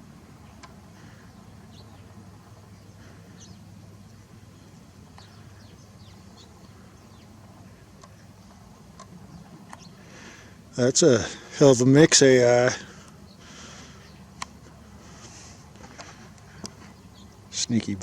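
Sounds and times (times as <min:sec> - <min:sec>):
steady low hum: 0:00.0 - 0:18.0
faint bird chirps: 0:00.4 - 0:08.6.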